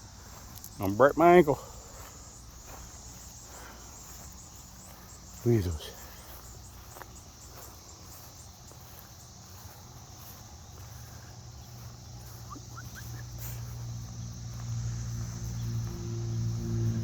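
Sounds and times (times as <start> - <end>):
insects trilling: 0.0 - 17.0
low droning tone: 14.3 - 17.0.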